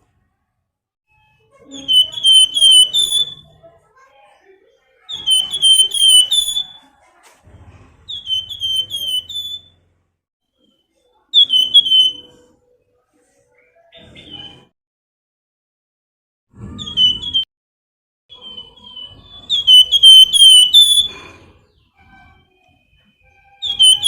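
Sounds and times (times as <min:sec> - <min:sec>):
songbird whistling phrases: 0:01.7 - 0:03.6, 0:05.1 - 0:06.8, 0:08.1 - 0:09.7, 0:11.3 - 0:12.5, 0:18.3 - 0:21.3, 0:23.2 - 0:24.0.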